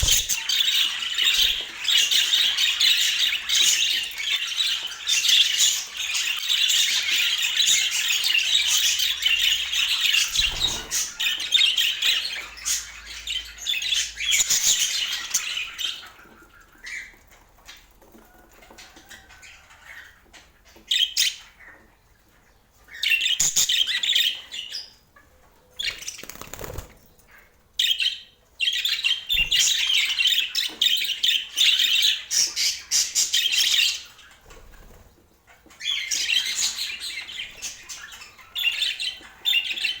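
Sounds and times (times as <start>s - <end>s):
budgerigars chattering: 0.0s - 12.5s.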